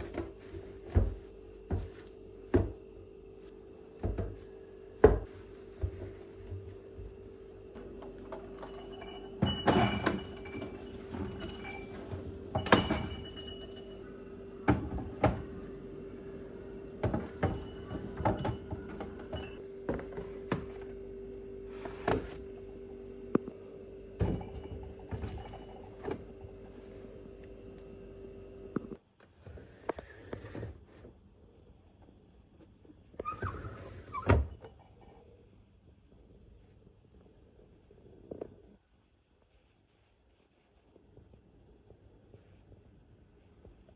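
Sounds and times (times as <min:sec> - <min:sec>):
steady hum: 0:00.0 - 0:29.0
dishes clinking and knocking: 0:07.9 - 0:14.0, 0:17.0 - 0:20.7, 0:24.2 - 0:26.6.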